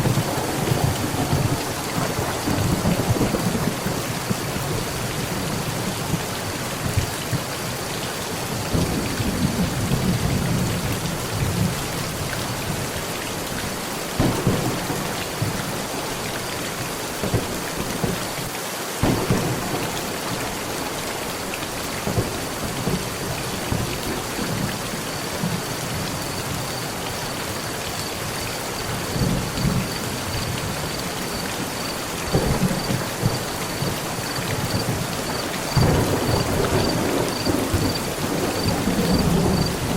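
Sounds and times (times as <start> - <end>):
thunder rumbling: 0.0 - 7.1, 14.2 - 18.3, 19.0 - 26.6, 28.8 - 39.9
heavy rain on a metal roof: 0.0 - 39.9.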